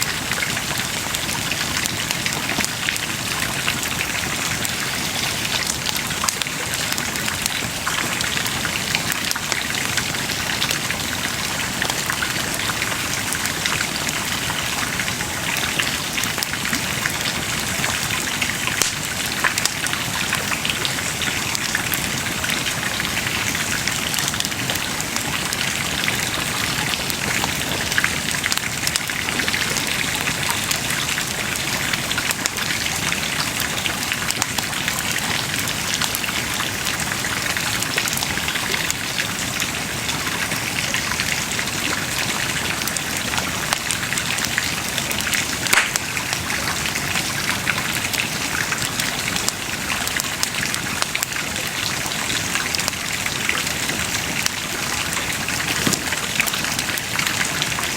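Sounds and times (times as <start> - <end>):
burning wood crackling and popping: 18.7 - 19.8, 45.5 - 46.4
bonfire flames hissing: 45.5 - 46.4.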